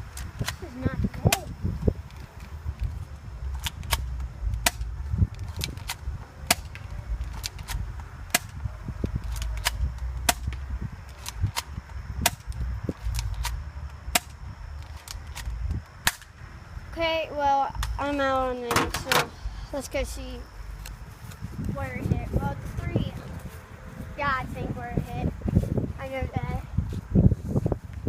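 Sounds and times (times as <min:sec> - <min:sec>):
low rumble: 0:00.0 - 0:28.0
airsoft pistol cracks: 0:07.4 - 0:08.6, 0:15.0 - 0:16.3.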